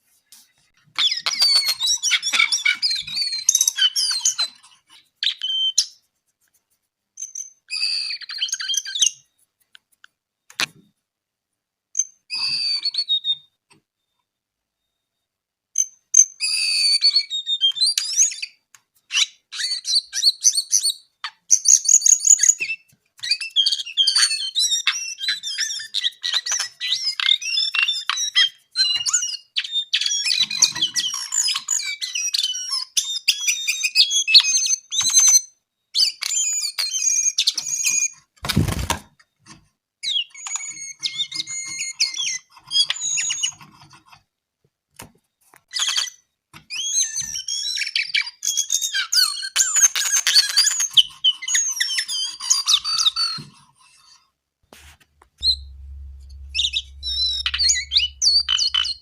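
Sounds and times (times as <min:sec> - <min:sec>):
bird chattering song: 0:55.4 - 0:59.0
loud low thump: 0:55.4 - 0:59.0.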